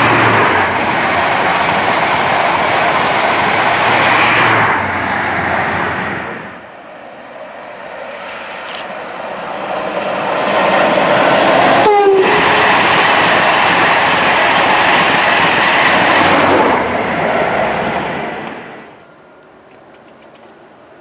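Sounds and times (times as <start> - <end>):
train passing at speed: 0.0 - 21.0
train horn blast: 11.8 - 12.6.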